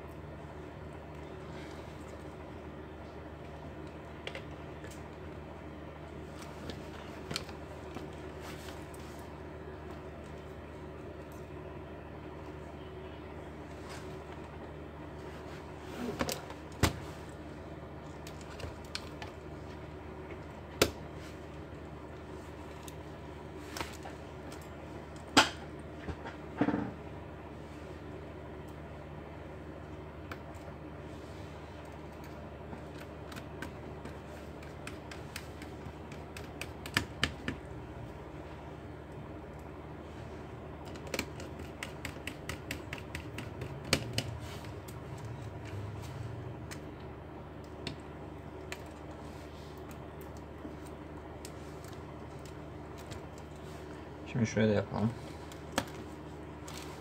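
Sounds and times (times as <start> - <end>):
steady low hum: 0.0 - 57.0
laptop parts clicking and tapping: 34.6 - 37.7, 40.8 - 45.7
clicks and knocks of laptop parts: 40.8 - 44.8.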